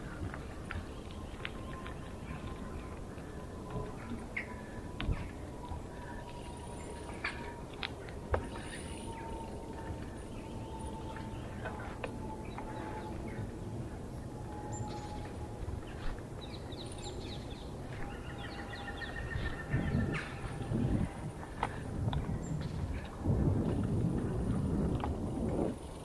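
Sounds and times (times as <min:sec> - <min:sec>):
birds chirping: 0:00.0 - 0:23.2
bicycle rumbling on woodland path: 0:00.0 - 0:26.0.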